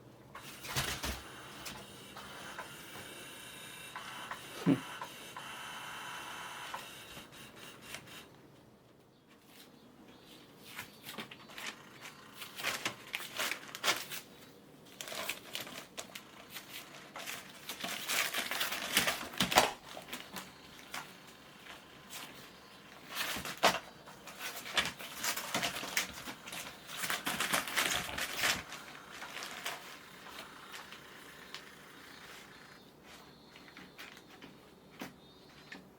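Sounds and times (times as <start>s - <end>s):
crinkling and rustling toy: 10.6s - 35.9s.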